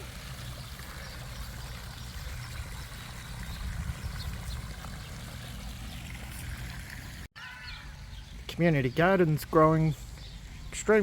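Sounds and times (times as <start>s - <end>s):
wind buffeting microphone: 2.1s - 5.3s.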